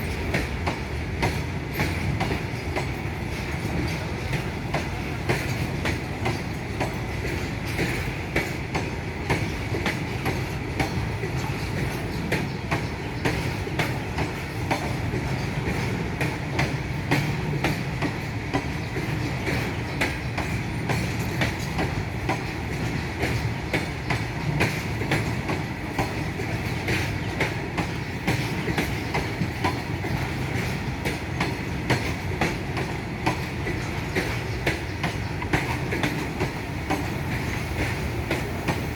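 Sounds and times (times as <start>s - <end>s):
freight train rumbling past: 0.0s - 38.9s
wheels clicking over rail joints: 0.0s - 38.9s
wheels ringing on rails: 0.0s - 38.9s.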